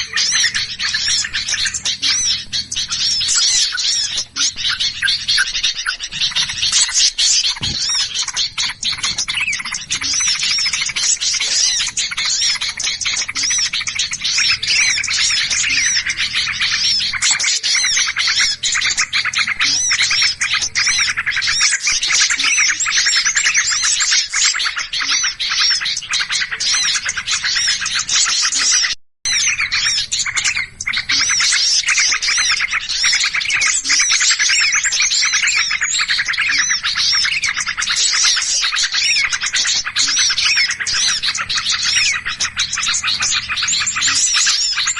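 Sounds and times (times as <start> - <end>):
songbirds chirping and twittering: 0.0 - 44.9.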